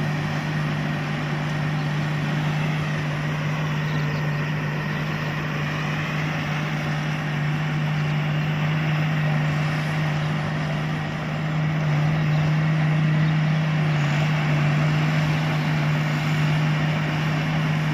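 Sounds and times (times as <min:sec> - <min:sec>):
combine harvester running: 0:00.0 - 0:17.9.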